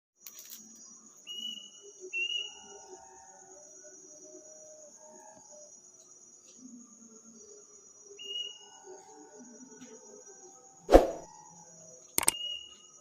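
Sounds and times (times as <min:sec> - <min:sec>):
night bird whistled call: 0:01.2 - 0:02.9, 0:08.2 - 0:08.9, 0:12.3 - 0:13.0.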